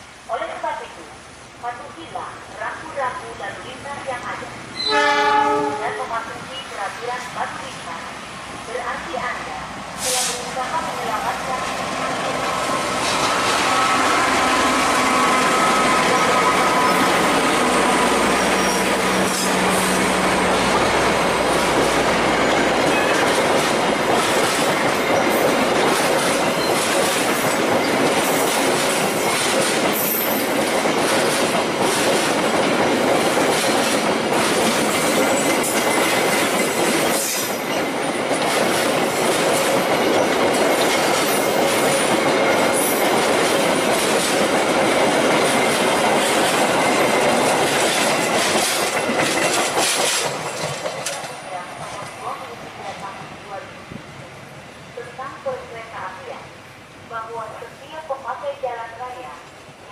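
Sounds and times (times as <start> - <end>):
passenger train passing at speed: 0.0 - 59.9
clickety-clack over rail joints: 20.9 - 53.2.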